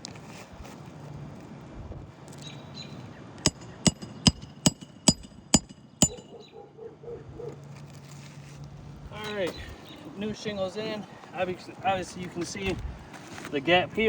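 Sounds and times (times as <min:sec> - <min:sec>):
hammer striking nails: 0:03.4 - 0:06.3.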